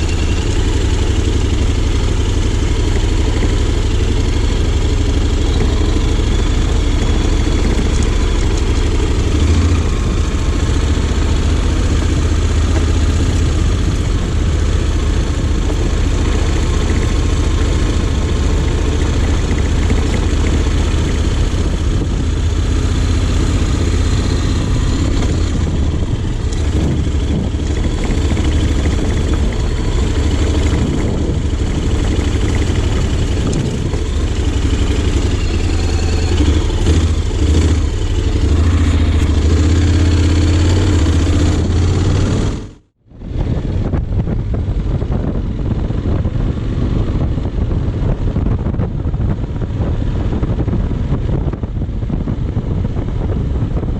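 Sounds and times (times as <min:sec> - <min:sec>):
motorcycle engine at low revs: 0:00.0 - 0:53.9.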